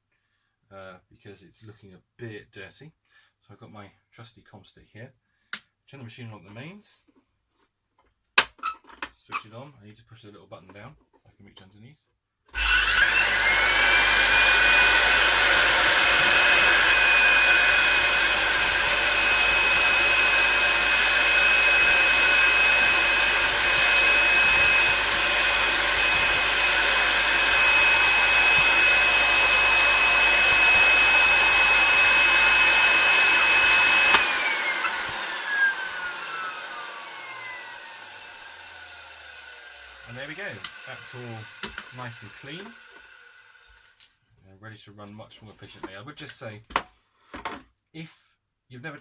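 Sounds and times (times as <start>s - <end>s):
vacuum cleaner motor whine: 12.6s - 43.9s.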